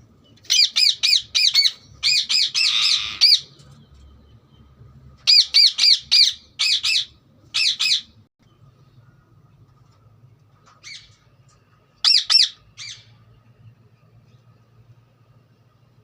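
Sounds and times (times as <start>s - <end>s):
parrot chirping: 0.5s - 3.6s, 5.3s - 8.2s, 12.0s - 13.2s.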